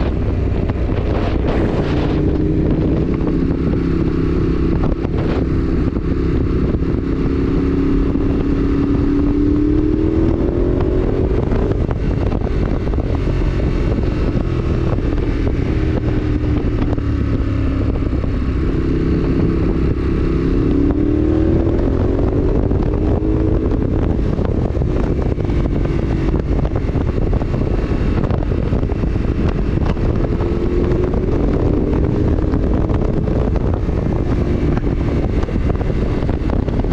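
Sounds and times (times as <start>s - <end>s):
motorcycle engine accelerating: 0.0s - 36.9s
wind rush on microphone: 0.0s - 36.9s.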